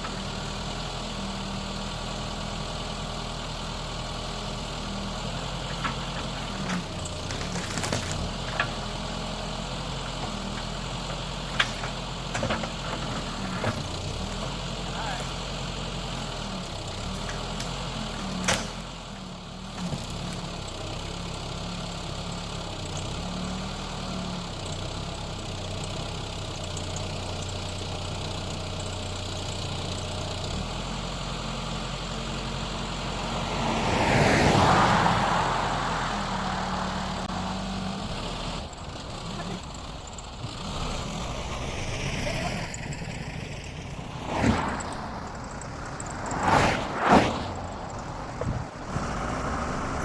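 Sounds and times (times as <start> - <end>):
engine idling: 0.0 - 34.2, 36.3 - 46.5
rush of noise: 38.0 - 50.0.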